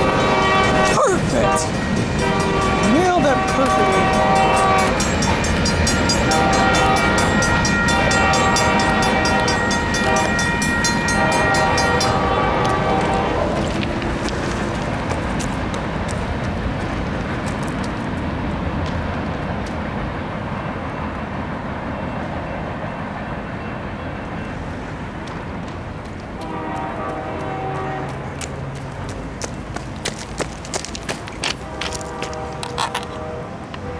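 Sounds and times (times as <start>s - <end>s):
locomotive horn: 0.0s - 16.4s, 26.4s - 29.3s, 31.2s - 33.9s
train wheels rumbling on rail: 0.0s - 33.9s.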